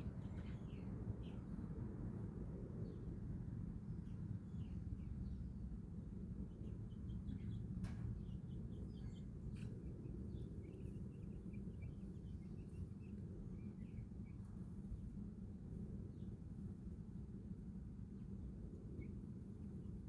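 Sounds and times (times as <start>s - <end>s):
baby chicks chirping: 6.5s - 15.1s.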